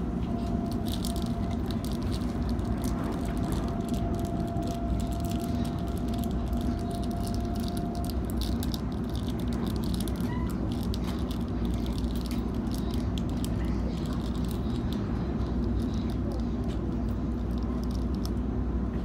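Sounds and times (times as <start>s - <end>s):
faint whine: 0.0s - 19.0s
train cabin rumble: 0.0s - 19.0s.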